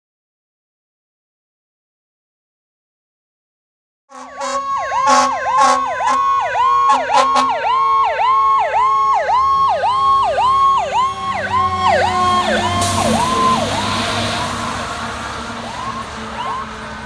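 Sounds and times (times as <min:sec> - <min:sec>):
engine and road noise: 0:04.1 - 0:17.0
fire engine siren yelping: 0:04.1 - 0:17.0
low siren tone sliding down: 0:04.1 - 0:17.0.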